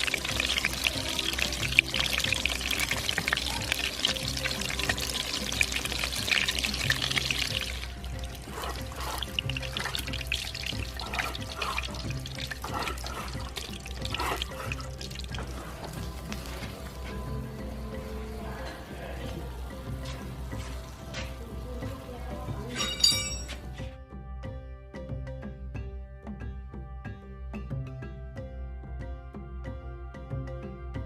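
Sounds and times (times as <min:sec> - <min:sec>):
water running: 0:00.0 - 0:23.8
music with low beat: 0:00.0 - 0:31.0.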